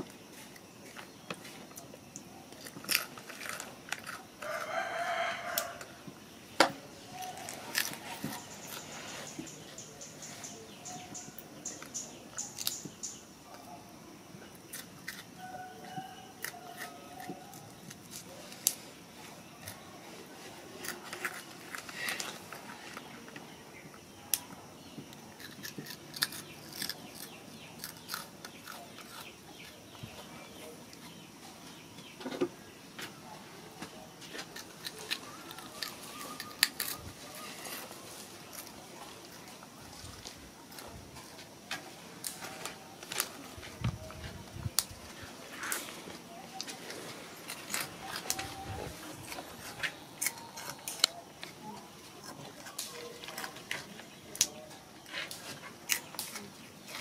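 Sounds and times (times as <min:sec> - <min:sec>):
rooster crowing: 0:04.4 - 0:06.0, 0:15.4 - 0:17.4.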